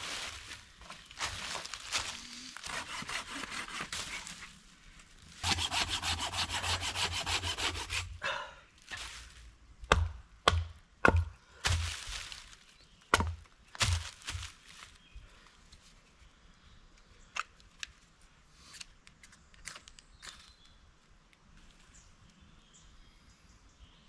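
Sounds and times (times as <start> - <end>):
hand saw cutting wood: 2.6 - 4.4, 5.4 - 8.1
sharp wooden knocks: 9.9 - 11.9, 13.1 - 14.4.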